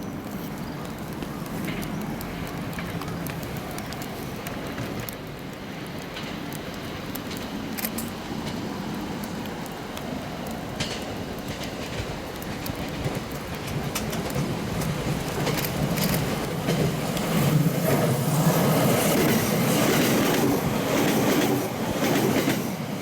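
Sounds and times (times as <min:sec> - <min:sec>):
train wheels rumbling on rail: 0:00.0 - 0:23.0
sharp clicks: 0:06.2 - 0:08.2.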